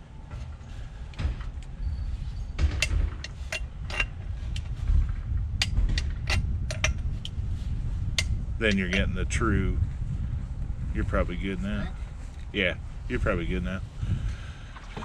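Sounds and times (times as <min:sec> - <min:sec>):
steady low rumble: 0:00.0 - 0:15.0
metallic clicks and knocks: 0:02.6 - 0:07.4.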